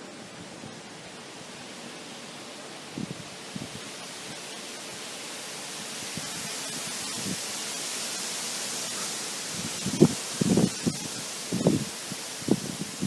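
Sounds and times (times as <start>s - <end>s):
wind rushing through trees: 0.0s - 13.0s
wind buffeting microphone: 2.8s - 5.2s, 5.8s - 8.2s, 8.8s - 13.0s.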